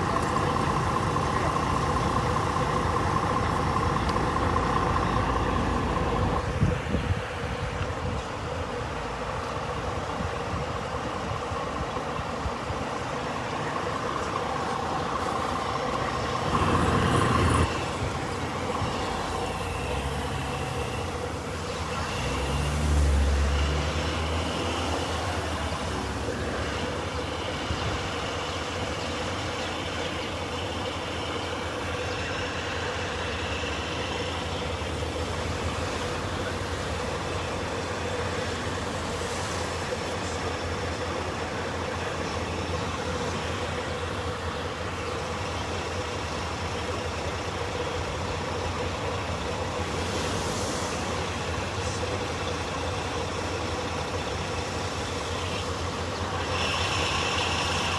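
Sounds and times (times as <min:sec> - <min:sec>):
heavy vehicle engine droning: 0:00.0 - 0:57.9
loud noisy burst: 0:14.5 - 0:57.9.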